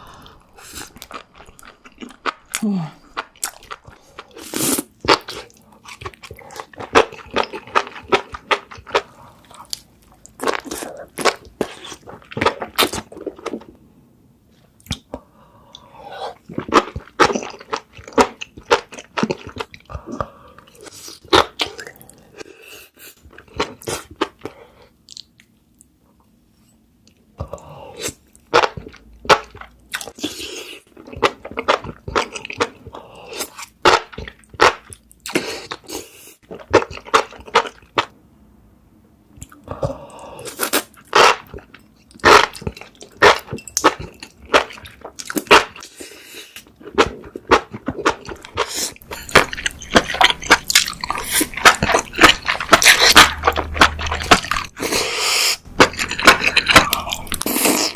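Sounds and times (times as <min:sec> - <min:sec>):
crunchy chewing: 0:46.6 - 0:57.9.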